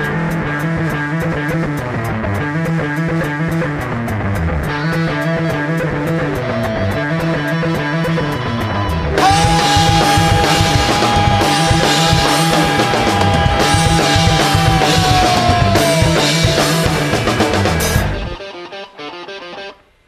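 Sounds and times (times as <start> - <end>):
rock band playing: 0.0 - 19.8
distorted guitar held bending note: 9.1 - 19.8.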